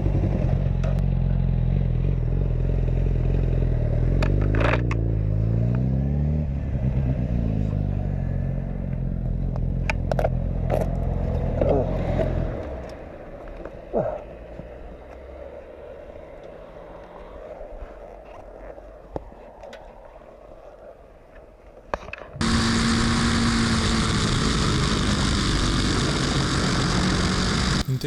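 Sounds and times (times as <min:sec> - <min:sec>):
motorcycle running: 0:00.0 - 0:13.2, 0:22.4 - 0:28.0
motor and road noise: 0:00.0 - 0:28.0.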